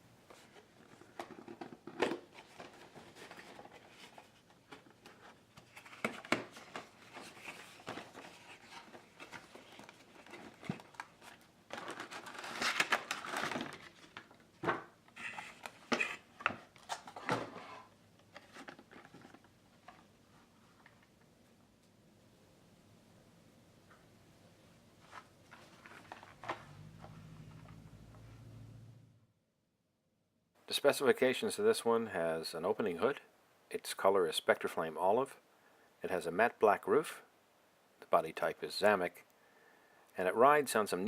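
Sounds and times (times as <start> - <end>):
packaging crinkling and rustling: 0.8 - 17.6, 18.3 - 20.1, 25.1 - 26.7.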